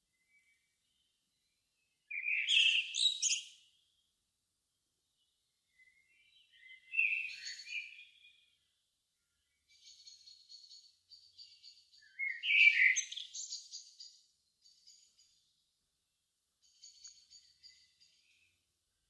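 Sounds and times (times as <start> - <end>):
songbird warbling: 12.0 - 13.6.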